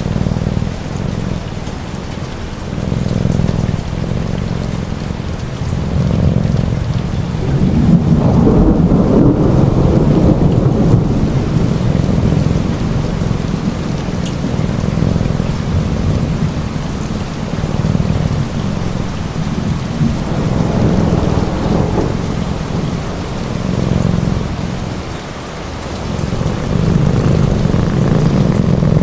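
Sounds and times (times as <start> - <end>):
rolling rumble of thunder: 0.0 - 29.0
steady rain: 0.0 - 29.0.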